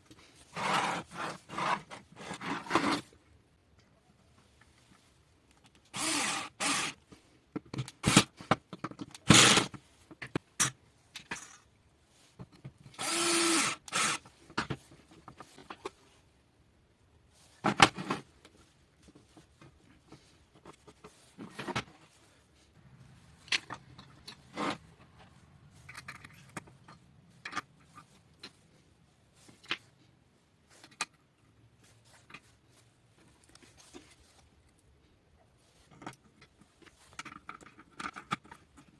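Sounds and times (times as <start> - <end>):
scraping or drilling: 0.5 - 3.1, 6.0 - 7.0, 9.3 - 9.8, 12.9 - 14.3, 23.1 - 25.0
clicks and knocks of parts: 23.4 - 28.6, 30.7 - 31.2, 35.8 - 38.9.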